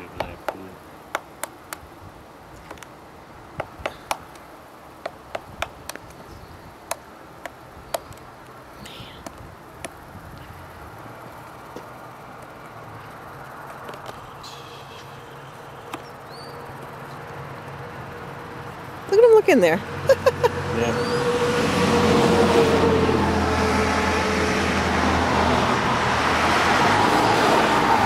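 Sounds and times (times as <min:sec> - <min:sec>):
woodpecker knocking on wood: 0:00.0 - 0:01.8, 0:03.6 - 0:08.3.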